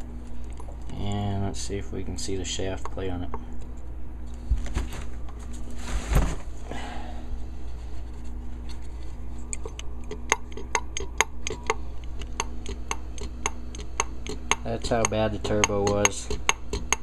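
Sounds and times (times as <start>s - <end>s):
turbocharger shaft clicking: 9.4s - 17.0s.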